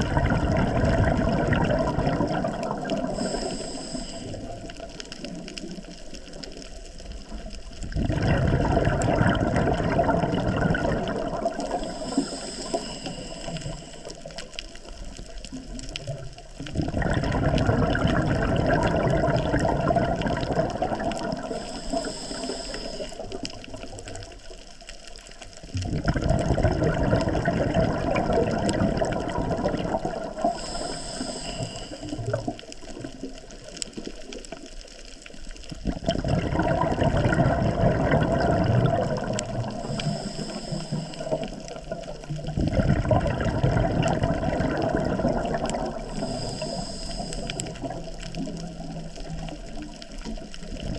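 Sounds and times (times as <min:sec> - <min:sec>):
exhaled bubbles rushing: 0:00.0 - 0:24.6, 0:25.5 - 0:50.9
regulator inhale hiss: 0:02.9 - 0:05.0, 0:11.6 - 0:14.8, 0:21.4 - 0:23.6, 0:30.3 - 0:32.5, 0:39.6 - 0:42.3, 0:45.8 - 0:48.5.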